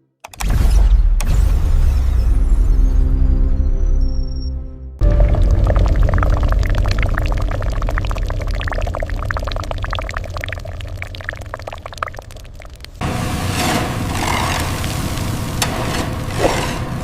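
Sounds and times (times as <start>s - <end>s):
liquid pouring and splashing: 5.0s - 17.0s.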